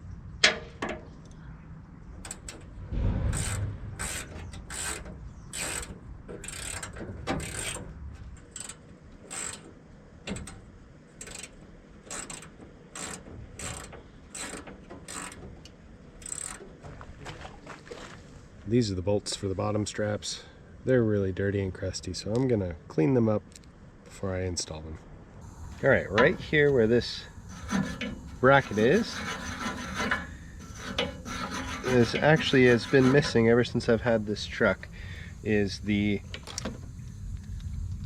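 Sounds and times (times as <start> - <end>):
ratchet wrench clicking: 8.4 - 9.6, 11.2 - 15.4, 16.2 - 16.6.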